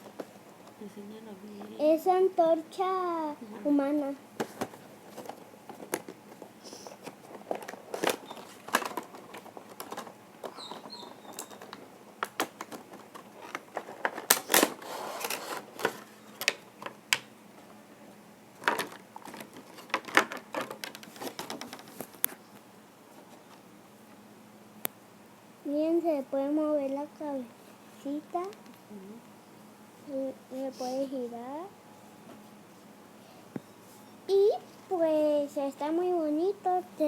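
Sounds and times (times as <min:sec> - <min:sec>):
cardboard box and plastic handled: 0:04.4 - 0:16.6, 0:18.6 - 0:22.4.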